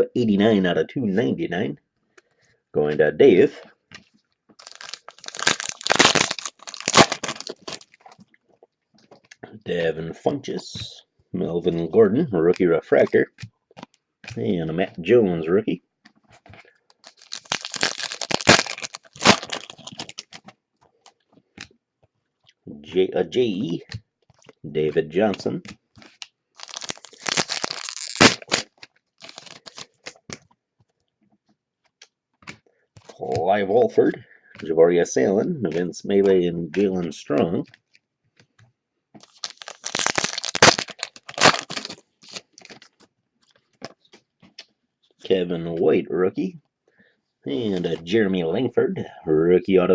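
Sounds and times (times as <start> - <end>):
foil wrapper tearing and crinkling: 4.6 - 8.1, 16.9 - 20.5, 26.0 - 30.3, 39.2 - 43.0
small clicks and rustles: 40.9 - 45.2.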